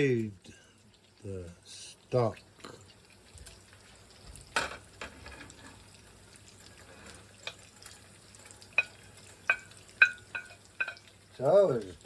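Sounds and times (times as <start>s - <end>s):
utensil knocking against cookware: 8.8s - 11.0s.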